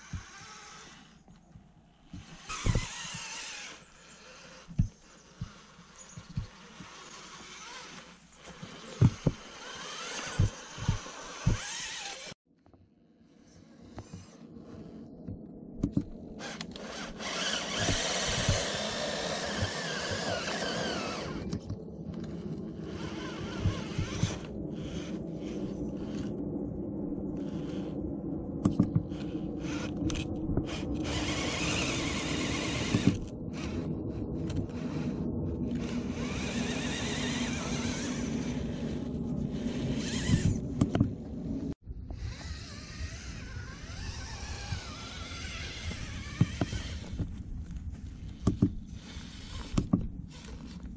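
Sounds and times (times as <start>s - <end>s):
rc car motor whining: 0.0s - 1.5s, 2.1s - 12.4s, 16.4s - 21.6s, 22.2s - 26.3s, 29.1s - 40.6s, 42.2s - 47.3s.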